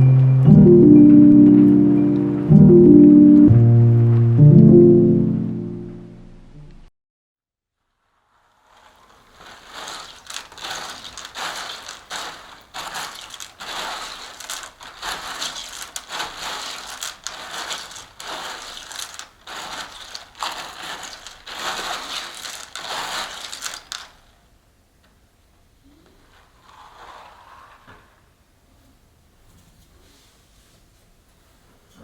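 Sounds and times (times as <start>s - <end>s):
crunchy rustling and crackling: 7.8s - 24.4s.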